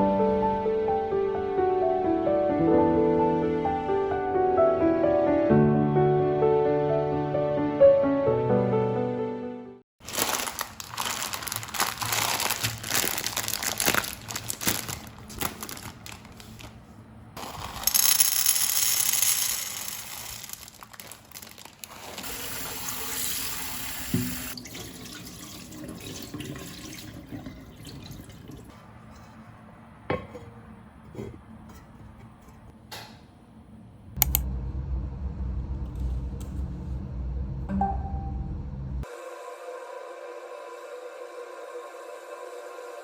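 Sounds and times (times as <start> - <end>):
water running from tap into sink: 22.1 - 28.7.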